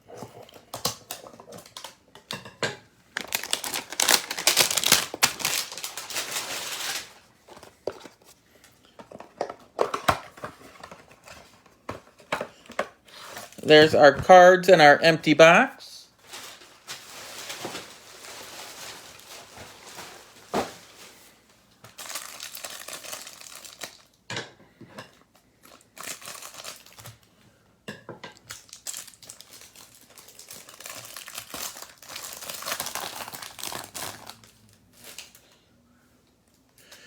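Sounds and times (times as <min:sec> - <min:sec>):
plastic wrapping crinkling and tearing: 0:00.4 - 0:02.0, 0:03.1 - 0:08.2, 0:16.1 - 0:24.2, 0:25.6 - 0:27.3, 0:28.4 - 0:35.5.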